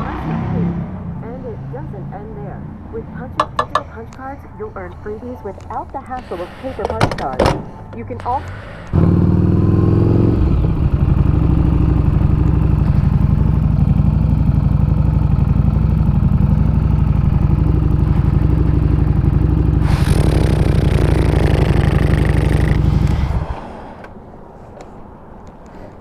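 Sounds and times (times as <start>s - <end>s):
motorcycle engine running: 3.0s - 4.9s, 8.9s - 23.8s
hiss: 19.8s - 24.0s.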